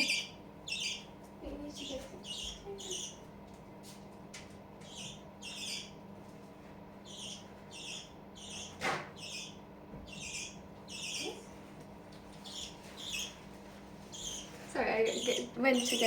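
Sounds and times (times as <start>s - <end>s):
budgerigar chirping: 0.0s - 1.1s, 1.8s - 3.2s, 4.8s - 6.0s, 7.0s - 11.5s, 12.4s - 13.4s, 14.1s - 16.0s.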